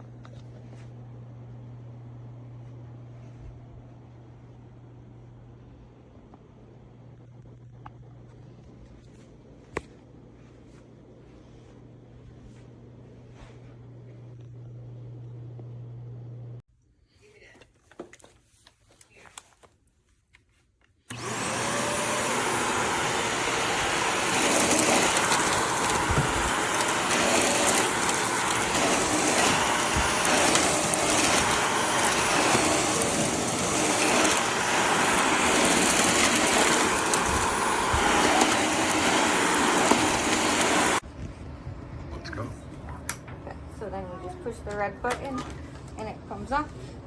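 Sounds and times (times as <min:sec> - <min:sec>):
vacuum cleaner motor running: 0:21.1 - 0:41.0.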